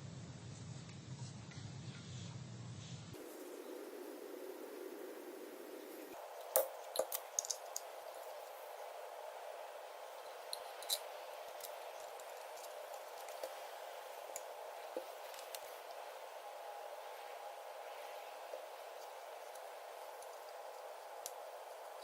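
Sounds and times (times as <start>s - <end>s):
faint hiss: 0.0s - 22.0s.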